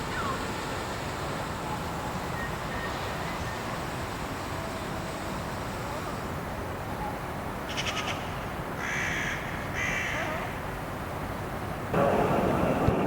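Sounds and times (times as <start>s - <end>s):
harsh crow-like caw: 8.8s - 10.2s.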